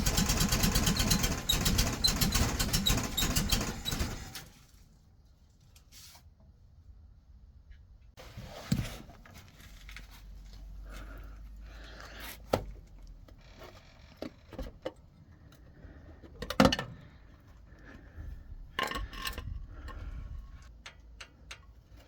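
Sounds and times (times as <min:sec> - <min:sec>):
hand tools and metal parts clinking: 0:18.6 - 0:22.0.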